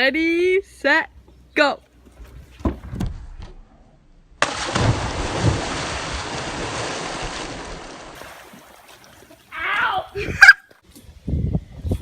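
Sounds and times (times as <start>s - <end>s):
splash into swimming pool: 4.4s - 9.8s
churning water: 4.4s - 10.0s.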